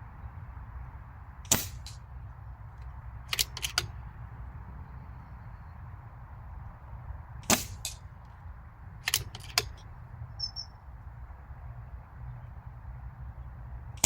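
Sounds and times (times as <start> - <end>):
steady low rumble: 0.0 - 14.0
air rifle shot crack: 1.5 - 2.1, 7.4 - 8.1
sharp clicks: 2.8 - 4.0, 9.0 - 10.7.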